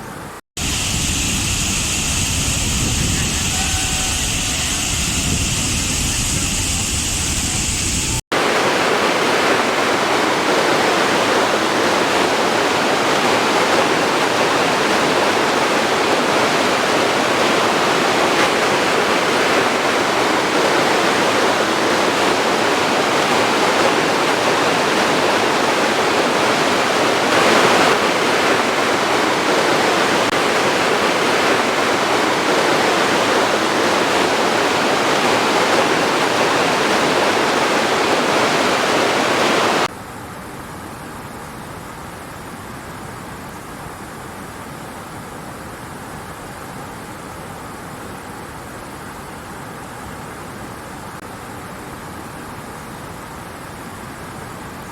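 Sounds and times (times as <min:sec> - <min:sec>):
waterfall rushing: 0:00.6 - 0:39.9.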